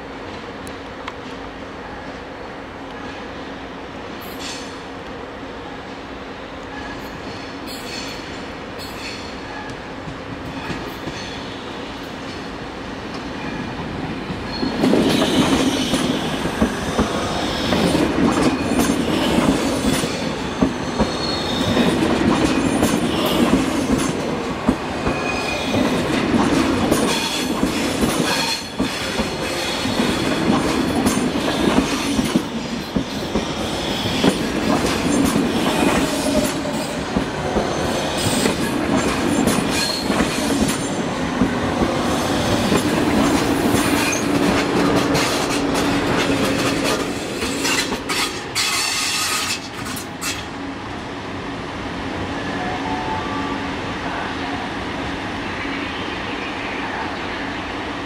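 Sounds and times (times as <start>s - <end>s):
train low hum: 0.0s - 58.0s
high wheel squeals: 20.8s - 21.9s.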